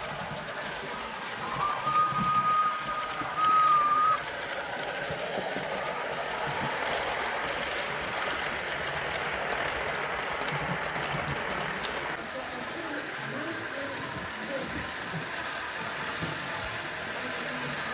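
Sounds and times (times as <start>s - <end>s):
model train running: 0.0s - 17.9s
model train whistle: 1.5s - 4.2s.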